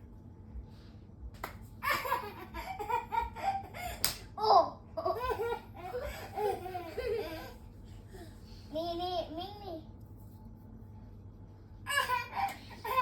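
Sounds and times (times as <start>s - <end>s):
sharp click or slap: 4.0s - 4.3s.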